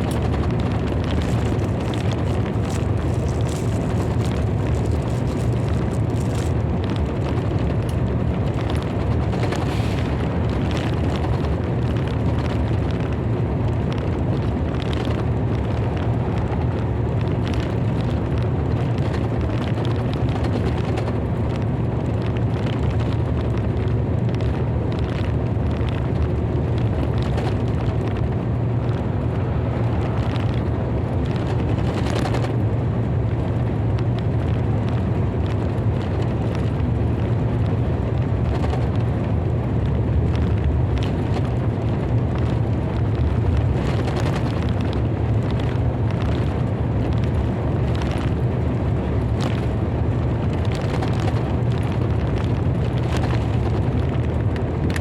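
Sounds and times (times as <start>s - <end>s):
thunder rumble: 0.0s - 19.8s, 24.4s - 36.0s.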